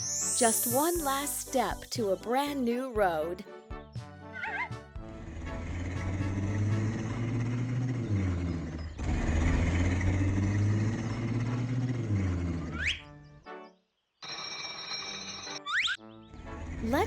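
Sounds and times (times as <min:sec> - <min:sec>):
cartoon background music: 0:00.0 - 0:08.2, 0:12.7 - 0:13.8, 0:15.4 - 0:17.0.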